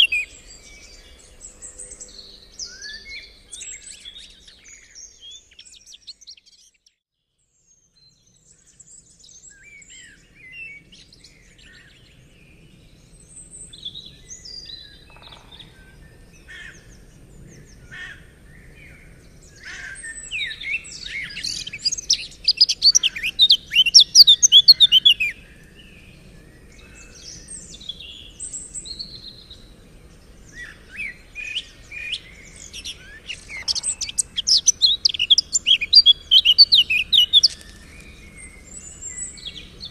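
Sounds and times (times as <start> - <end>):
songbirds chirping and singing: 0.0 - 7.0, 7.8 - 39.9.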